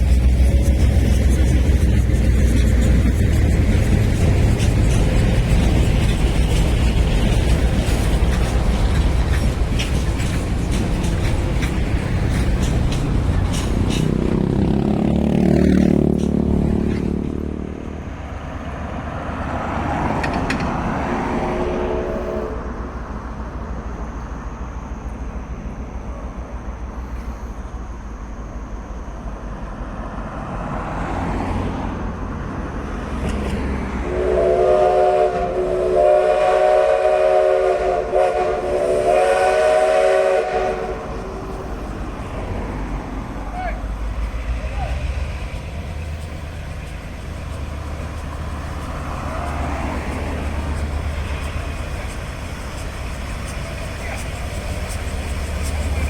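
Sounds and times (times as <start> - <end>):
rumble of running train: 0.0 - 56.0
train horn chord signal: 21.4 - 23.0, 34.1 - 41.4.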